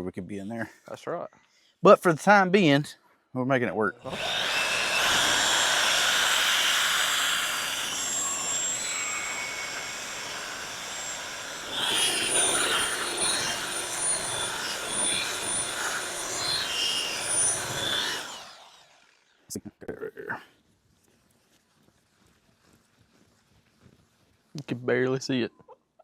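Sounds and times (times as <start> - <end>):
electric buffer motor whine: 4.0 - 19.1
polishing pad hissing on hull: 4.1 - 18.3.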